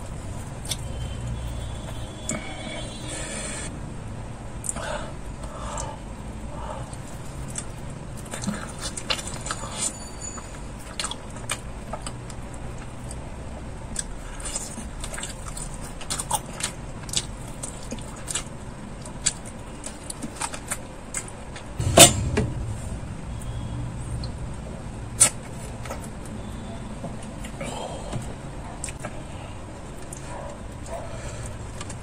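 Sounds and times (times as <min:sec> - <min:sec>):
chewing fried chicken: 0:05.6 - 0:21.7, 0:27.2 - 0:32.0.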